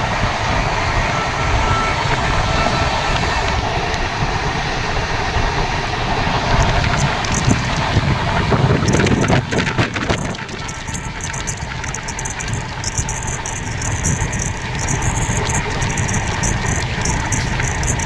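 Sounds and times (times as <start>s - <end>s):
train running noise: 0.0s - 18.0s
wind on microphone: 0.0s - 18.0s
sharp clicks: 8.9s - 18.0s.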